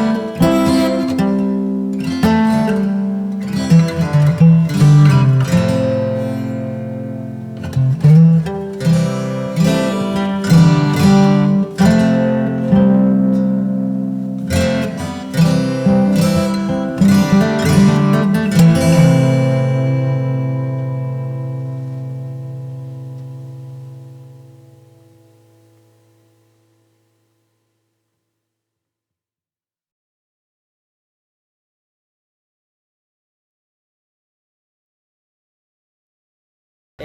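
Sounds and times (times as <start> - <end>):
acoustic guitar music: 0.0 - 27.1.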